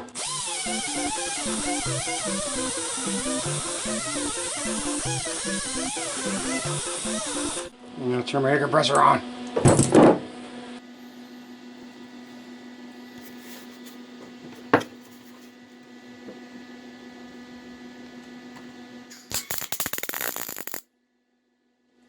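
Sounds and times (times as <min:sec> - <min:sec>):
mechanical hum: 0:00.0 - 0:22.0
sharp click: 0:19.1 - 0:20.8.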